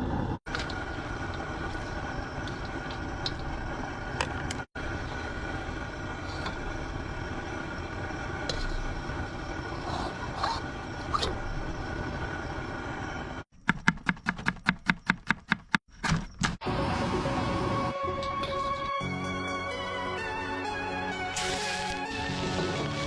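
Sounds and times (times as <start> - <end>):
rushing rumbling noise: 0.0 - 13.4.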